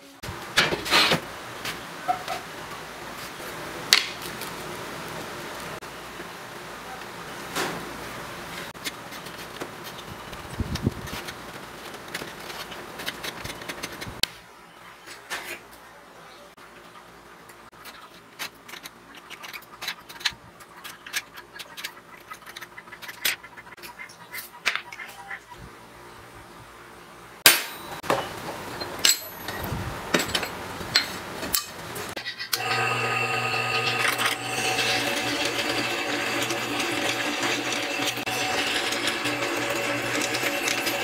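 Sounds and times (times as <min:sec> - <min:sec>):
wooden pieces tapping and scraping: 0:10.7 - 0:14.2.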